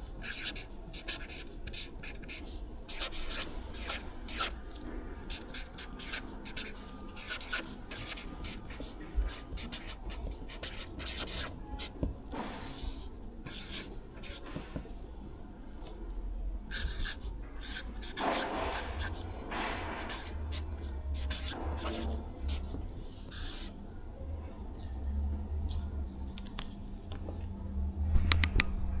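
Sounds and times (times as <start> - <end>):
goods scraping and rubbing: 16.7 - 23.7.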